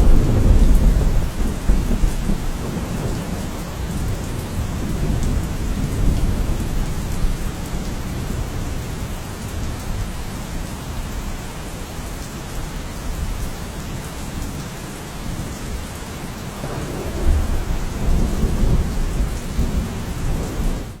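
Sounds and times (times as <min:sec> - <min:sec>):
heavy rain: 0:00.0 - 0:21.0
deep low rumble: 0:16.2 - 0:20.9.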